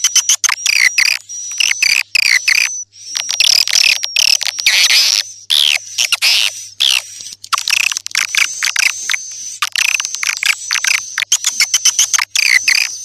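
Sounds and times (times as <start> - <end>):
high-pitched bird twittering: 0.0 - 13.0.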